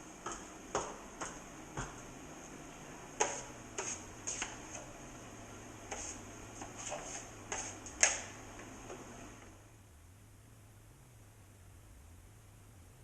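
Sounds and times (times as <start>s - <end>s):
drywall knife scraping compound: 3.2s - 4.9s, 5.9s - 8.2s.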